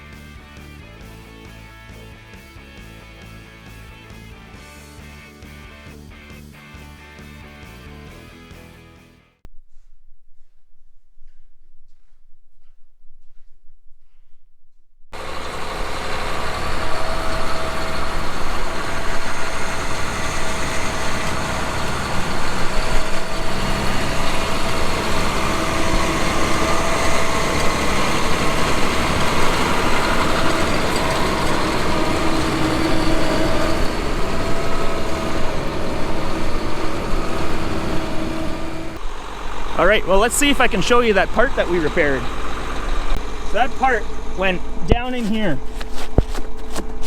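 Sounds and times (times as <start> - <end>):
steady whine: 15.1 - 47.0
diesel engine rumbling: 15.2 - 47.0.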